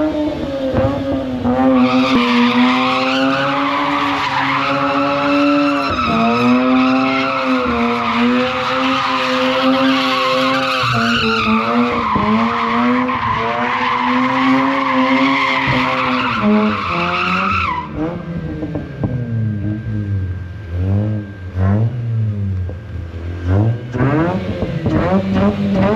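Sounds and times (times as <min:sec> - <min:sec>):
rotary engine at high revs: 0:20.7 - 0:25.9.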